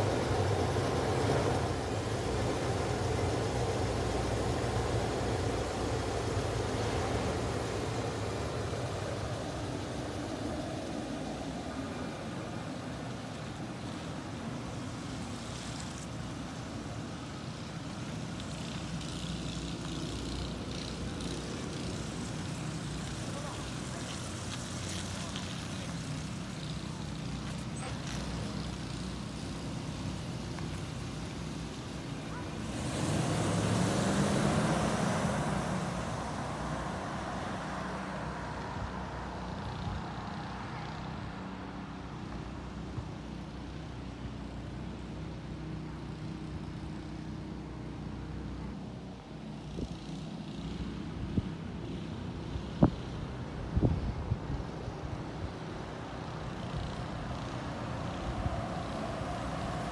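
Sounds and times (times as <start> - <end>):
car engine idling: 0.0 - 39.1.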